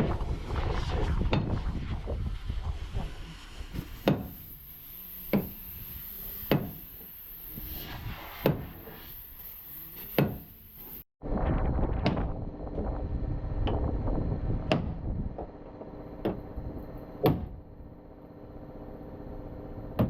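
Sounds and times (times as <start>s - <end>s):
hammer blows: 0.0s - 11.0s
workshop noise: 2.9s - 11.1s.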